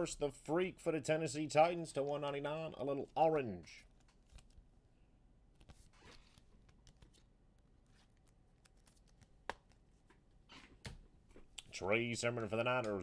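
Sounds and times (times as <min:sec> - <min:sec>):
cards clicking and rustling: 0:03.9 - 0:04.6, 0:07.9 - 0:10.9.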